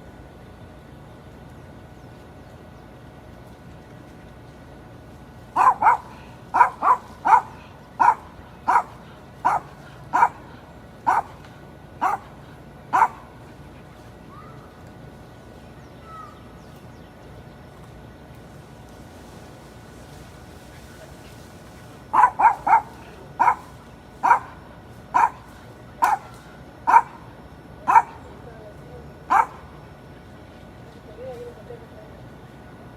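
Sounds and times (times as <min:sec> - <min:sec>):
dog barking: 0:05.6 - 0:11.4, 0:12.0 - 0:13.3, 0:22.1 - 0:27.2, 0:27.8 - 0:28.2, 0:29.3 - 0:29.7.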